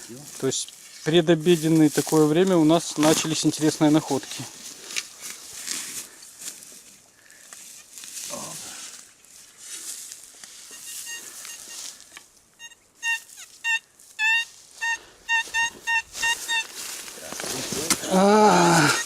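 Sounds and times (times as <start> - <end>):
metal detector beeping: 10.6 - 17.3, 18.2 - 19.0.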